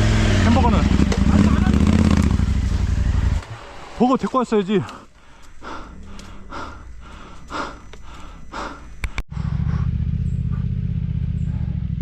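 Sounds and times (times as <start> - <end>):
motorcycle engine running: 0.0 - 3.8, 9.3 - 12.0
short breaths: 4.8 - 9.9.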